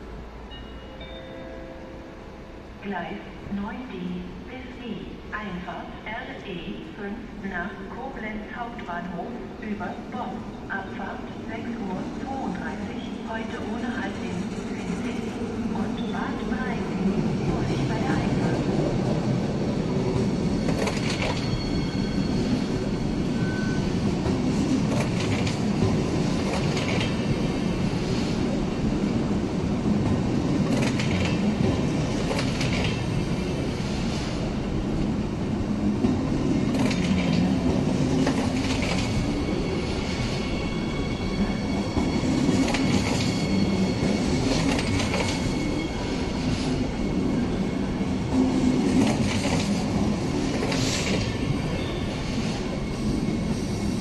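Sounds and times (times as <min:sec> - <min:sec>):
train rumbling past: 0:10.5 - 0:54.0
train wheels clicking: 0:30.0 - 0:33.1.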